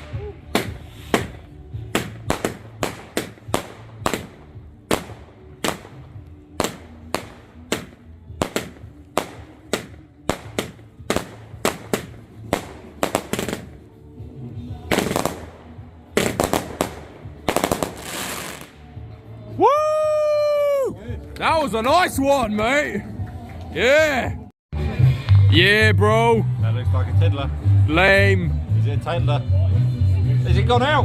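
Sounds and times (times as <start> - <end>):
fireworks bangs: 0.0 - 13.8, 14.9 - 18.8.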